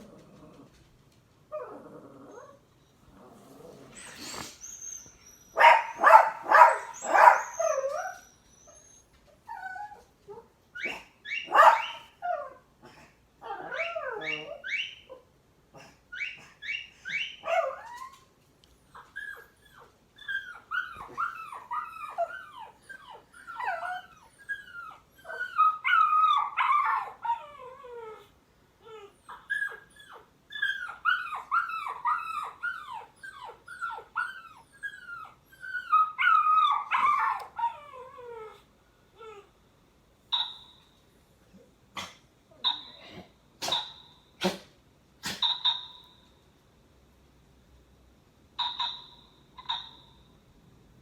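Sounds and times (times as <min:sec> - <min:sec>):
dog whining and whimpering: 0:01.5 - 0:12.6, 0:13.4 - 0:39.5.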